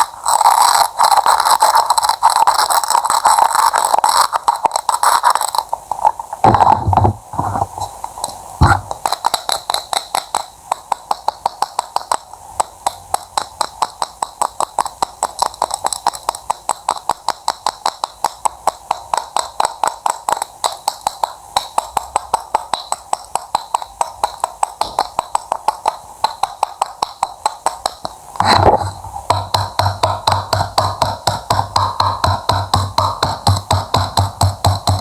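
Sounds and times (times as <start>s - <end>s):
knife cutting on cutting board: 8.6s - 9.1s, 28.4s - 35.0s.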